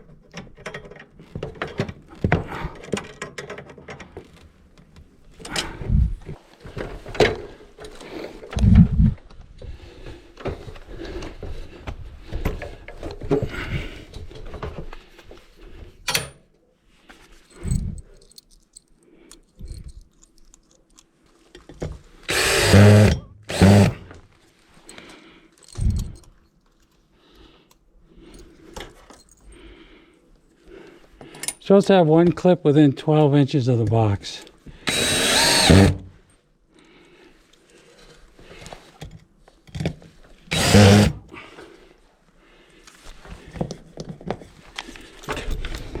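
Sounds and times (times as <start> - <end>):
metal conduit and tools clattering: 0.0 - 4.5
power drill driving screw: 22.3 - 24.1, 34.8 - 36.1, 40.5 - 41.3.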